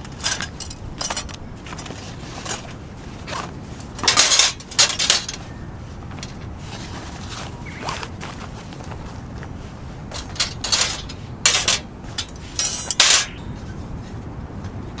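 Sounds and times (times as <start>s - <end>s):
small hard objects clinking: 10.2s - 13.4s.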